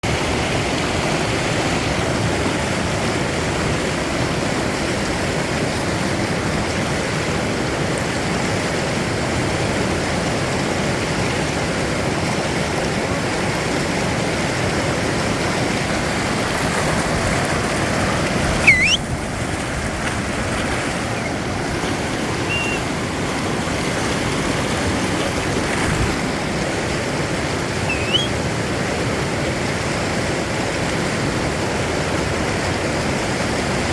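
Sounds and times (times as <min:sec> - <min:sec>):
river rapids rushing: 0:00.1 - 0:33.9
high rising whistles: 0:18.6 - 0:19.0, 0:22.4 - 0:22.8, 0:27.8 - 0:28.4.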